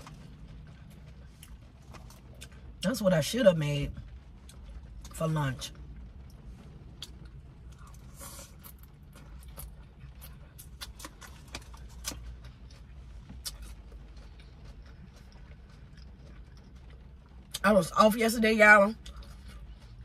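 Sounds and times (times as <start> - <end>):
low steady hum: 0.0 - 20.0
crisp chewing crunches: 6.3 - 17.6.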